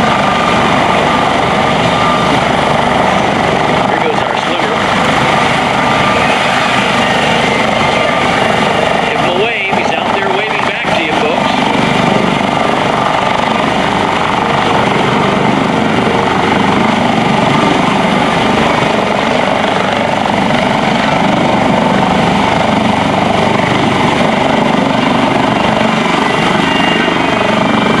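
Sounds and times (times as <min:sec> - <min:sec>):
helicopter rotor and turbine noise: 0:00.0 - 0:28.0.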